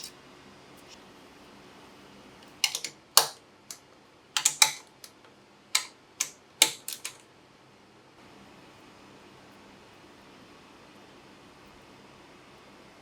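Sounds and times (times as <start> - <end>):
tools clicking and tapping: 2.6 - 3.8, 4.4 - 7.2.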